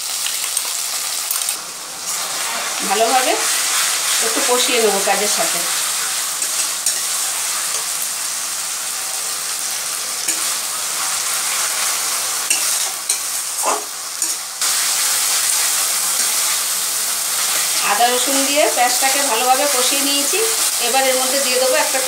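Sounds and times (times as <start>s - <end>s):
onions sizzling in oil: 0.0s - 22.0s
metal spatula scraping a pan: 3.0s - 8.0s.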